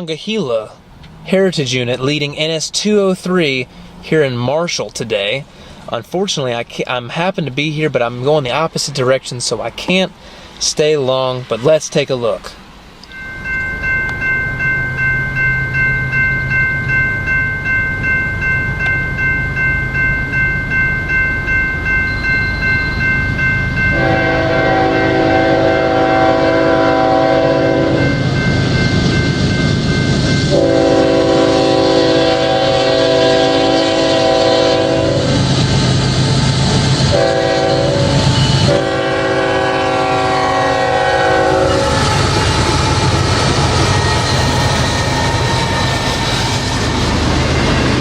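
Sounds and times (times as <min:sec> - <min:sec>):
diesel train rumble: 0:00.0 - 0:48.0
crossing signal bell ringing: 0:13.0 - 0:48.0
train air horn blasts: 0:23.9 - 0:28.2, 0:30.5 - 0:35.6, 0:37.1 - 0:42.9.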